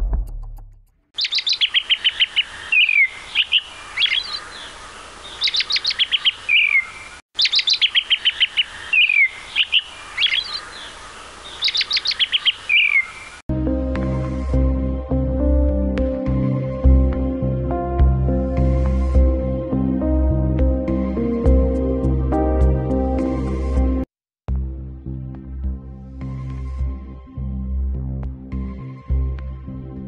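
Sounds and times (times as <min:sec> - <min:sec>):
songbird trilling and chirping: 0:01.2 - 0:13.4.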